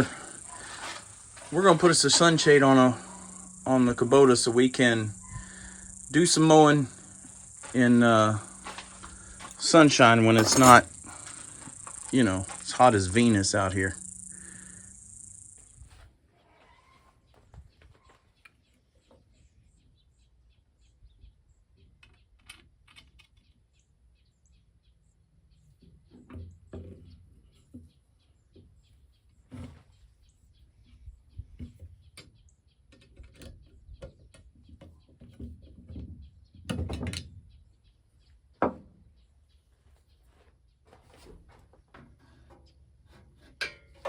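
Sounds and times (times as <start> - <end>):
faint birds chirping: 0.0 - 43.5
knocks and clunks of handiwork: 6.9 - 12.8, 41.2 - 44.0.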